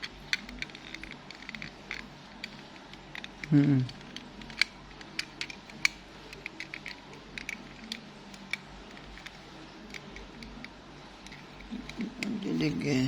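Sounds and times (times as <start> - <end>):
plastic toy clicks and taps: 3.2 - 10.5.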